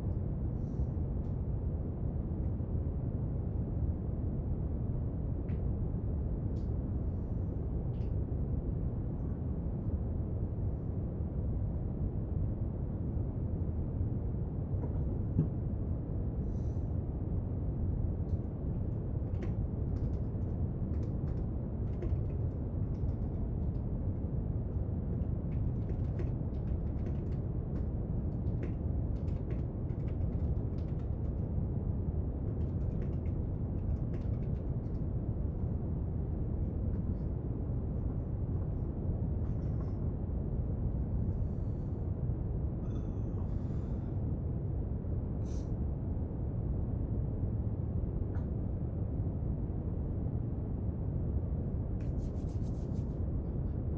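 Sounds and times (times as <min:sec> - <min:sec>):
low brown noise: 0:00.0 - 0:53.9
clicks and taps at a desk: 0:19.3 - 0:23.4, 0:25.2 - 0:31.3.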